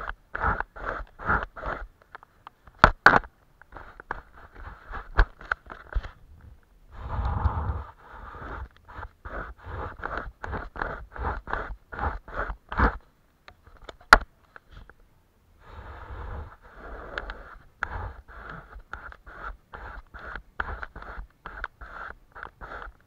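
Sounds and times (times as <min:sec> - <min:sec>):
paintbrush rasping on paper: 0:00.0 - 0:01.9, 0:03.7 - 0:06.1, 0:07.7 - 0:13.1, 0:15.7 - 0:23.0.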